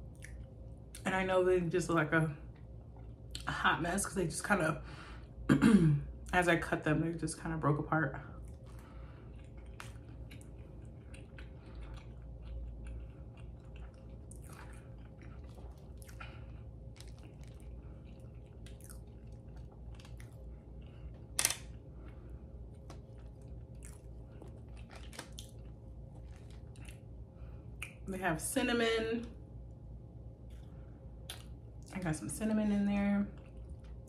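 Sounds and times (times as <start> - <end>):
person chewing: 8.4 - 28.0, 30.4 - 31.9, 33.4 - 34.0
wet mouth clicks and smacks: 27.8 - 28.0, 31.2 - 31.6.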